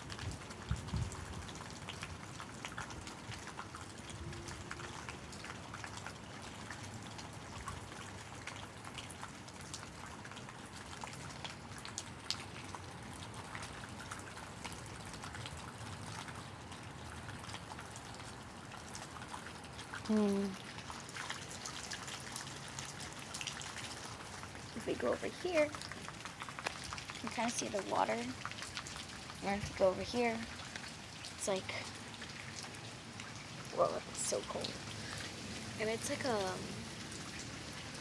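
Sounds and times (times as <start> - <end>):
pouring rain hiss: 0.0 - 38.0
raindrops ticking and splashing: 0.0 - 38.0.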